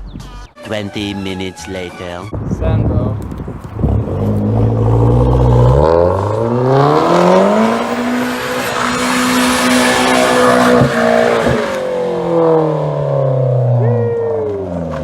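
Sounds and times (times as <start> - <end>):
car engine accelerating: 3.1 - 15.0.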